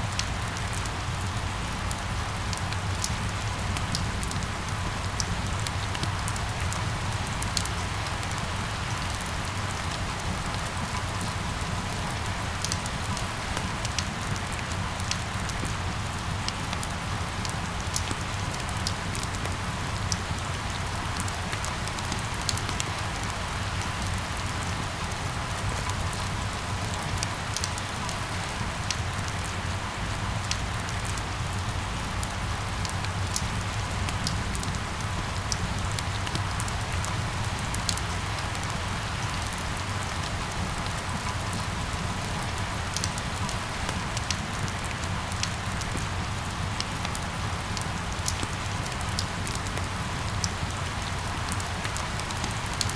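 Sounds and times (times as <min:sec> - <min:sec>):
rain falling: 0:00.0 - 0:52.9.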